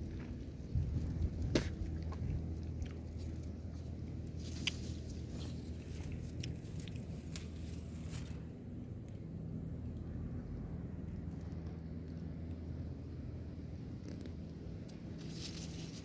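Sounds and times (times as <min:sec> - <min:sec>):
low steady hum: 0:00.0 - 0:16.0
person chewing: 0:01.6 - 0:08.4.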